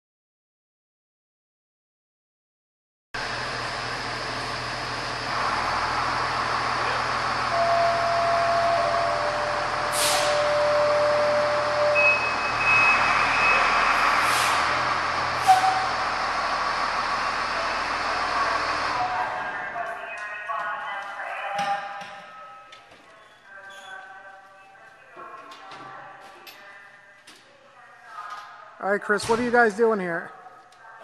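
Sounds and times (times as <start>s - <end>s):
fire truck engine running: 3.2s - 20.8s
brief steady tones: 7.5s - 13.8s
air release hisses: 9.9s - 10.4s.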